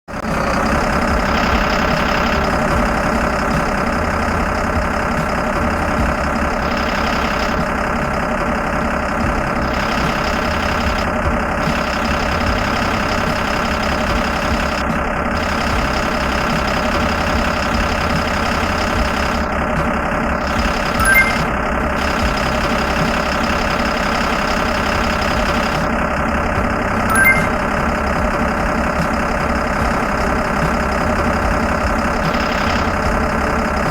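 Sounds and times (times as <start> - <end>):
truck engine running: 0.1 - 33.9
high chirps: 21.0 - 21.6, 27.1 - 27.7.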